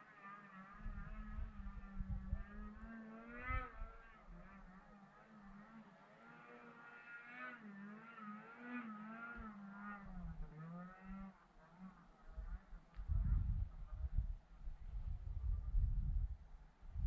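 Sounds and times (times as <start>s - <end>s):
wind gusting on microphone: 0.8s - 4.0s, 12.4s - 17.0s.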